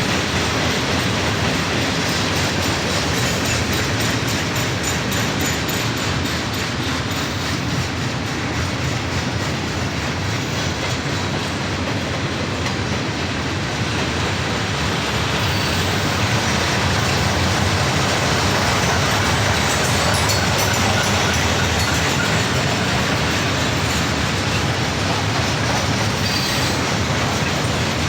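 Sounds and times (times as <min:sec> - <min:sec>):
freight train rolling past: 0:00.0 - 0:28.0.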